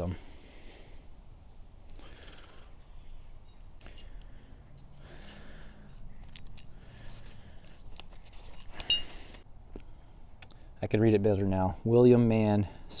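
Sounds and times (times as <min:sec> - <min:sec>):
light clicks and rustles: 0:03.4 - 0:10.6
sharp metallic clink: 0:08.7 - 0:09.2.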